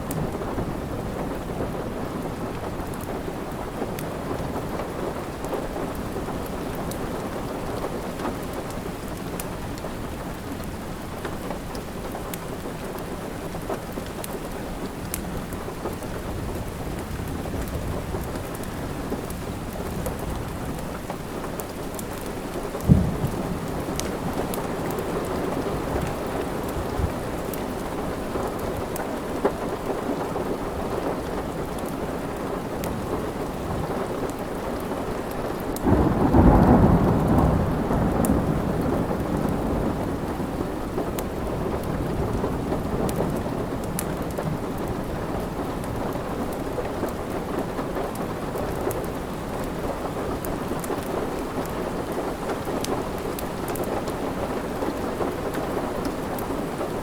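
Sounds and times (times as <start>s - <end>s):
steady rain: 0.0s - 57.0s
wood fire crackling: 2.1s - 30.3s, 41.1s - 47.4s
thunder rolling: 22.8s - 27.2s, 35.9s - 44.8s.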